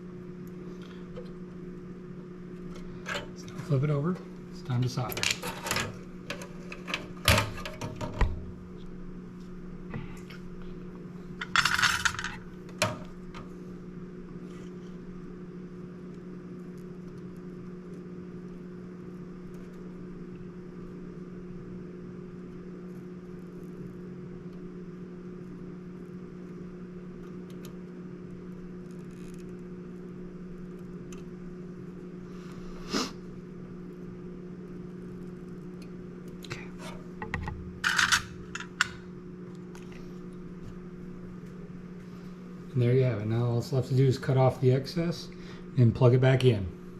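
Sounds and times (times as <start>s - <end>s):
low electrical hum: 0.0s - 46.9s
short hissing scrape: 32.4s - 33.2s.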